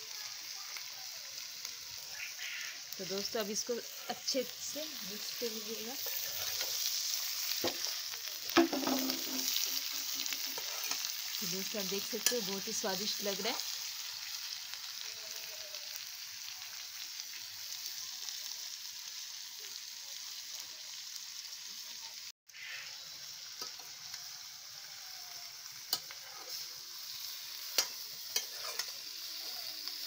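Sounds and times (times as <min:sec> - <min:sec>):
vegetables sizzling in a pan: 0:00.0 - 0:30.0.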